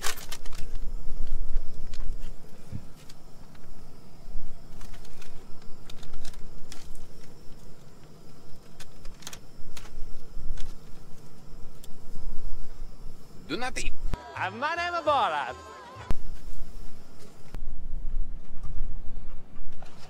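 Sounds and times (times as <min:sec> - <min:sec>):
food packaging crinkling: 0:00.0 - 0:03.7, 0:04.6 - 0:11.4.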